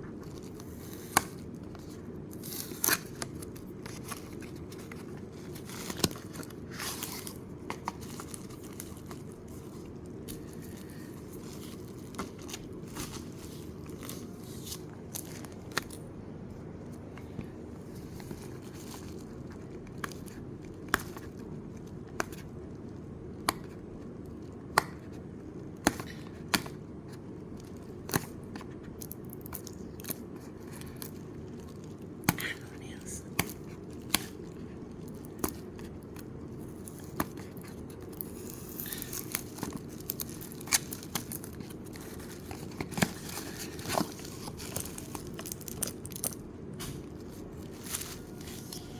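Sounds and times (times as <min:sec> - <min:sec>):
packaging crinkling and tearing: 0:00.1 - 0:16.1, 0:27.3 - 0:32.5, 0:33.4 - 0:48.9.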